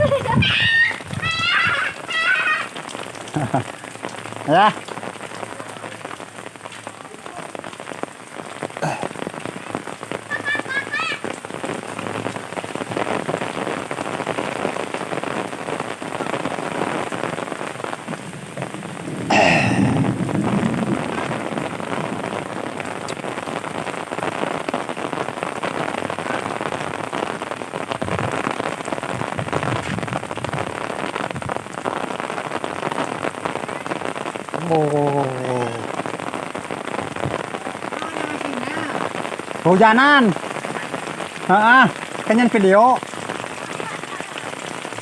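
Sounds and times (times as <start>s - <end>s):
heavy rain falling: 0.0s - 45.0s.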